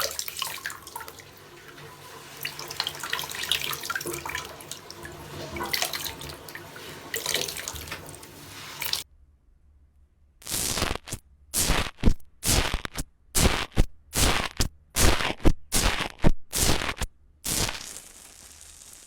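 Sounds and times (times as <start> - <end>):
slime scraping by hand: 10.4 - 19.0
faint hiss: 17.5 - 19.0.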